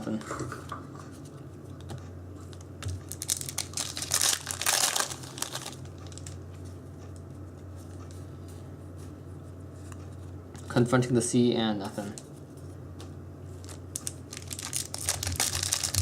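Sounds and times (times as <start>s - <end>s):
low steady hum: 0.0s - 16.0s
foil wrapper crinkling and tearing: 3.1s - 6.4s, 13.6s - 16.0s.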